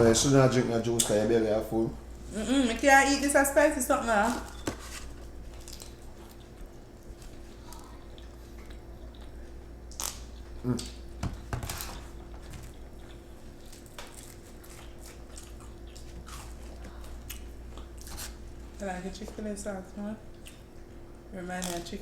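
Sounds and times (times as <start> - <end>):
faint steady hum: 0.0 - 22.0
people chewing: 5.2 - 18.8.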